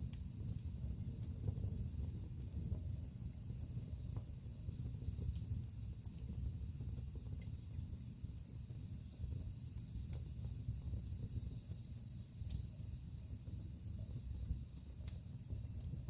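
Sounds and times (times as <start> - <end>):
logs crackling and popping: 0.0 - 6.4
fire flames rumbling: 0.0 - 16.0.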